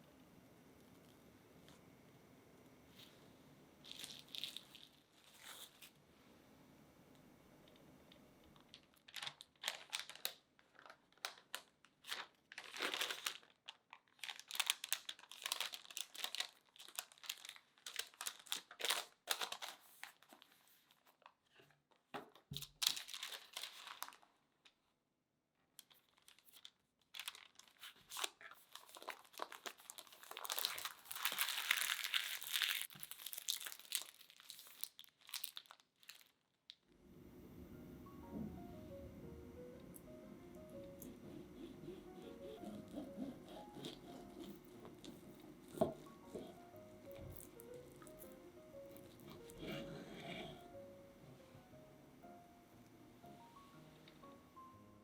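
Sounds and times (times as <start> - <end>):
paper crinkling: 3.8 - 6.0, 8.5 - 24.8, 25.8 - 36.6, 40.5 - 50.6.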